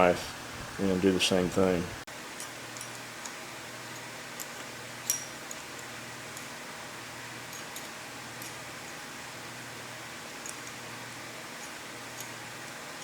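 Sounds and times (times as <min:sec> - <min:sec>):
low steady hiss: 0:00.0 - 0:13.0
wrench metallic clicks: 0:04.0 - 0:06.6.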